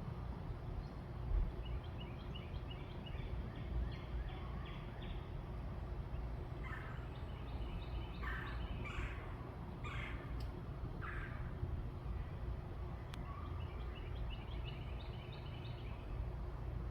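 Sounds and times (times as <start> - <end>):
birds calling: 6.0 - 12.3, 13.1 - 16.3.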